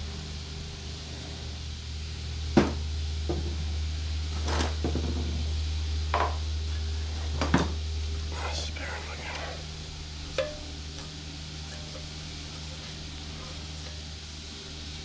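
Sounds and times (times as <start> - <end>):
steady low hum: 0.0 - 15.0
hand tools knocking on metal: 10.4 - 10.7.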